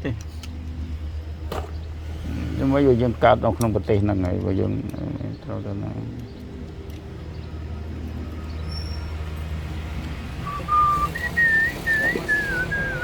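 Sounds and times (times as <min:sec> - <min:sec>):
steady low hum: 0:00.0 - 0:13.0
person whistling a tune: 0:10.4 - 0:13.0.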